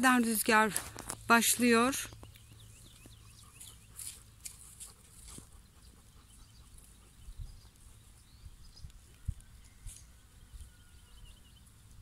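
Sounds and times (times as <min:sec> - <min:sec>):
soft clicks and rustles: 0:00.6 - 0:01.4
wind rumble on microphone: 0:07.0 - 0:12.0.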